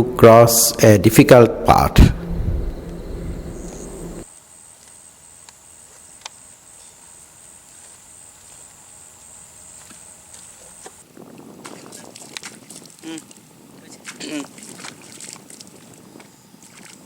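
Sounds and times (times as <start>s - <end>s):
insects trilling: 2.6s - 12.2s, 15.5s - 17.0s.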